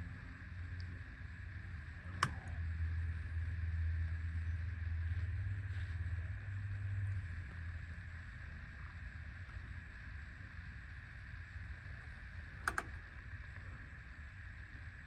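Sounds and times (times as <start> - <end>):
machine hum and hiss: 0.0 - 15.0
sharp clicks: 2.0 - 2.6, 12.6 - 13.2.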